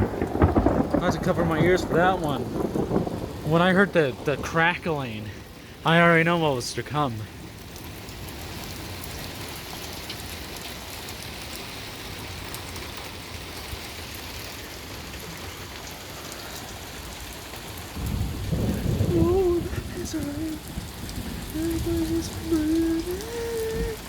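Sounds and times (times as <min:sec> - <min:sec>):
low rumble of thunder: 0:00.0 - 0:05.8, 0:17.4 - 0:24.0
heavy rain: 0:00.0 - 0:24.0.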